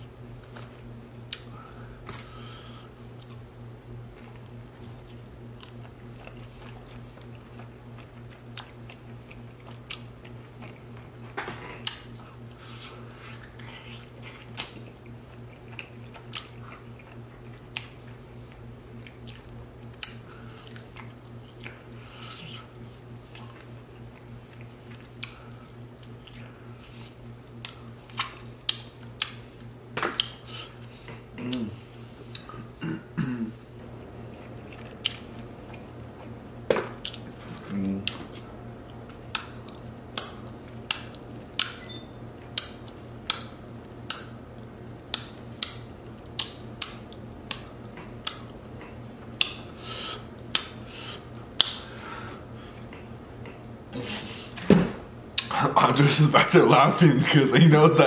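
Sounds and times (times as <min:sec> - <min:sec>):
steady low hum: 0:00.0 - 0:58.0
chewing and lip-smacking: 0:00.4 - 0:02.3, 0:03.0 - 0:32.7, 0:33.7 - 0:41.8, 0:42.4 - 0:51.8, 0:55.3 - 0:55.5
person humming: 0:31.4 - 0:31.8.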